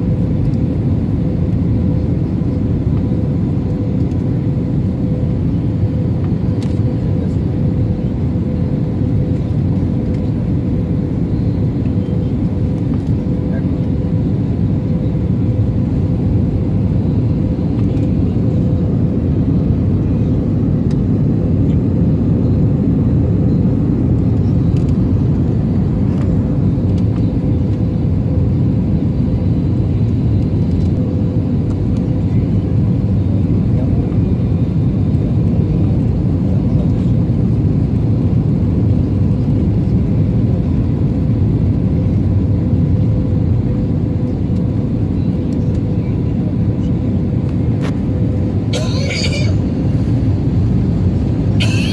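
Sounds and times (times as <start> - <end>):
airliner cabin rumble: 0.0 - 51.9.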